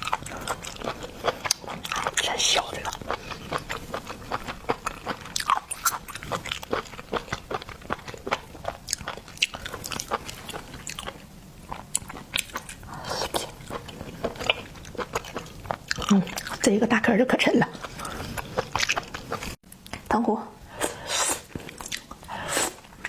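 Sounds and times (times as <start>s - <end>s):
wet chewing: 0.0s - 16.8s, 17.6s - 20.0s, 21.4s - 23.0s.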